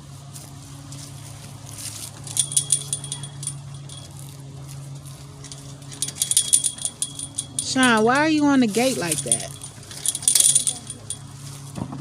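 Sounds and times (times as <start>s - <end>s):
steady low hum: 1.2s - 11.6s
metal tags jingling: 2.2s - 4.2s, 5.2s - 11.6s.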